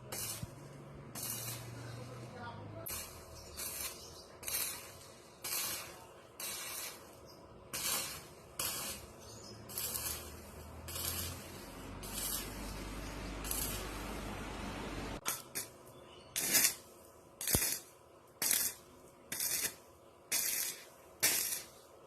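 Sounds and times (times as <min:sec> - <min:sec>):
short hissing sprays: 0:07.7 - 0:15.6.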